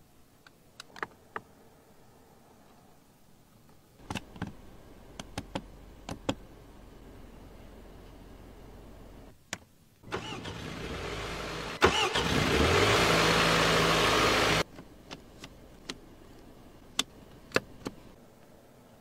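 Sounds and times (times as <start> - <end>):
car engine starting and idling: 10.0 - 14.7.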